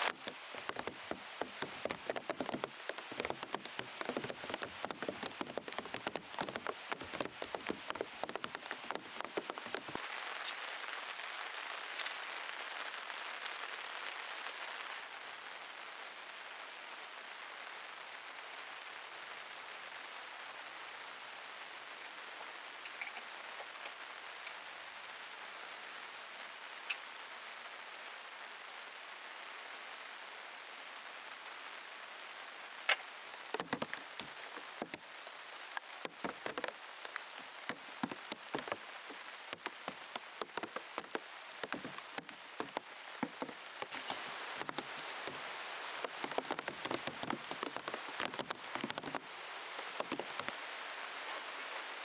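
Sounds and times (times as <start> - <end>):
raindrops tapping on plastic sheet: 0.0 - 12.2, 32.9 - 52.0
rain hiss: 0.0 - 21.9, 30.8 - 52.0.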